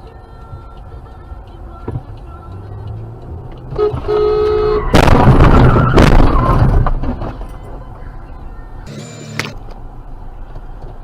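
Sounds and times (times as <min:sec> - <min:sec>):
car interior road noise: 0:00.0 - 0:11.0
car horn: 0:03.7 - 0:05.1.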